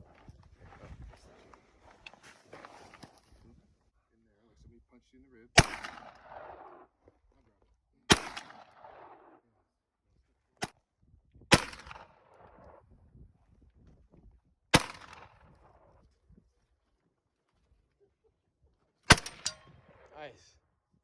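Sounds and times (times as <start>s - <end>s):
rifle shots with echo: 5.6s - 6.9s, 8.1s - 9.4s, 11.5s - 12.7s, 14.7s - 15.7s, 19.1s - 20.1s.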